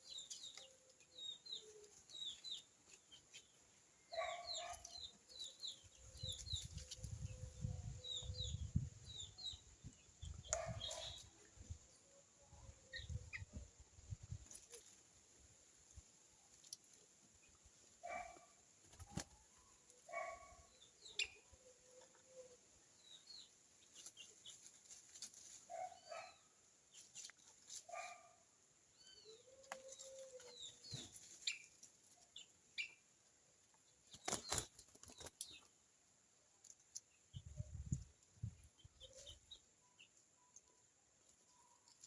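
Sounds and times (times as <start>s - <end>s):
bird calls and chirps: 0.0s - 11.8s, 18.0s - 24.7s, 28.9s - 33.0s, 37.0s - 42.0s
wings flapping: 18.8s - 19.4s, 34.1s - 35.4s.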